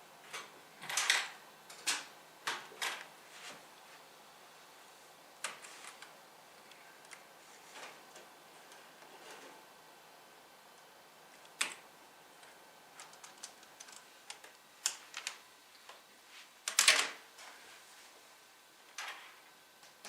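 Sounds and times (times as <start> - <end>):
typing on computer keyboard: 13.0 - 15.4.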